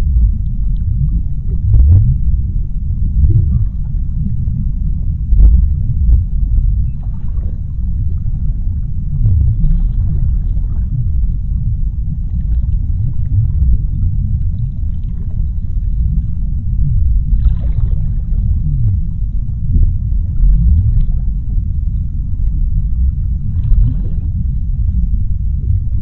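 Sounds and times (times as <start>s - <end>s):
faint clicks and crackles: 0.0s - 2.4s
deep underwater rumble: 0.0s - 26.0s.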